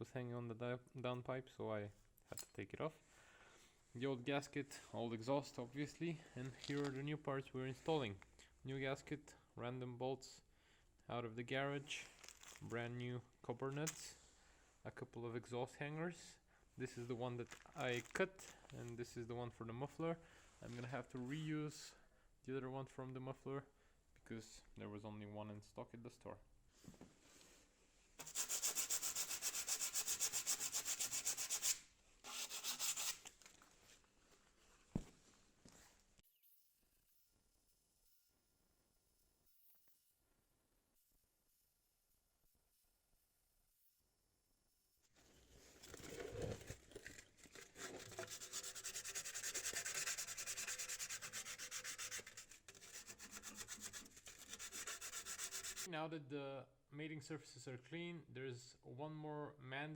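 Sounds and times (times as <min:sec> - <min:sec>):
scrubbing on metal: 0:46.0 - 0:55.9.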